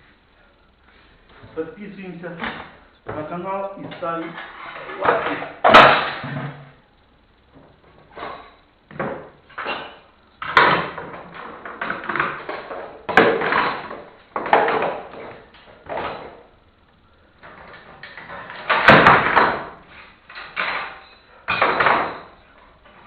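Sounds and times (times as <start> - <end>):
wooden beams knocking and clattering: 7.6 - 16.5, 17.4 - 22.4.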